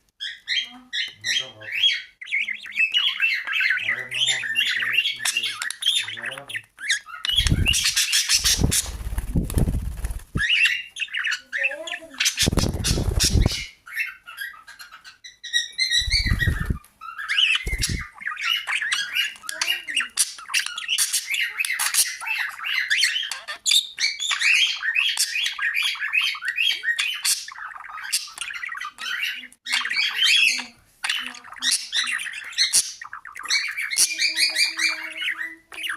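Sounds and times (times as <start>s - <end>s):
parrot chattering and squawking: 0.2s - 35.9s
loud rustling: 7.4s - 10.4s, 12.4s - 13.6s.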